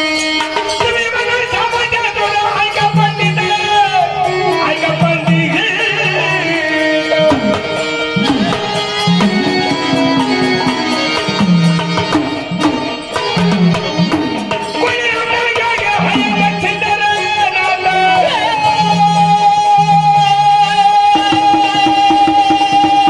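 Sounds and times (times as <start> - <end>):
sustained melody line: 0.0 - 23.0
tabla drumming: 0.0 - 23.0.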